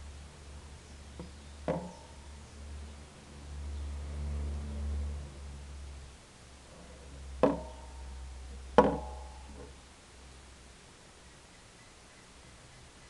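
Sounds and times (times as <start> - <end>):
low hum: 0.0 - 11.2
sharp metallic knocks: 1.2 - 2.3, 7.4 - 9.7.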